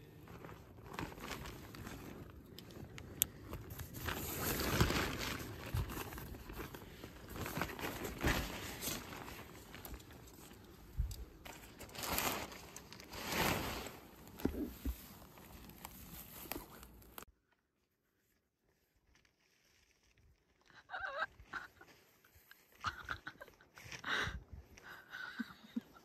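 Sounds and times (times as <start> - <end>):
camping gear rustling: 0.0 - 17.3.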